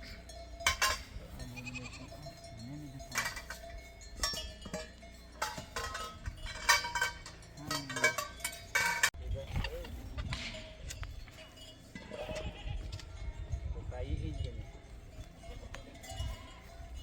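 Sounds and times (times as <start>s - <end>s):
livestock bells clanking: 0.0s - 17.0s.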